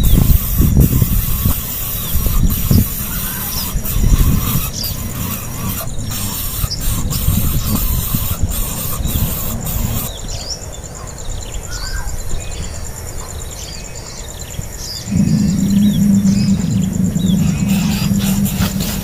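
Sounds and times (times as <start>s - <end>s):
steady low hum: 0.0s - 10.1s, 15.0s - 19.0s
nestling birds cheeping: 0.0s - 19.0s.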